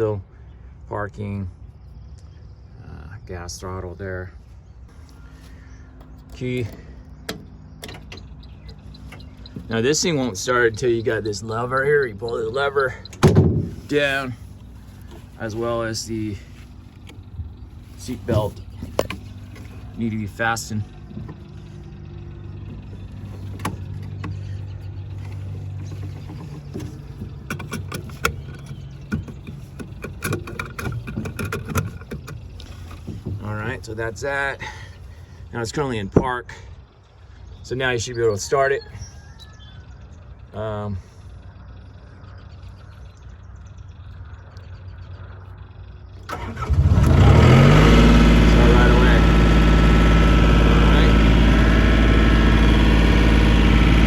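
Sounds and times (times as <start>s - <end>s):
diesel engine cranking and running: 5.3s - 35.5s, 45.3s - 54.0s
seat bar lever clunking: 6.0s - 9.8s, 22.7s - 24.4s, 25.8s - 32.5s.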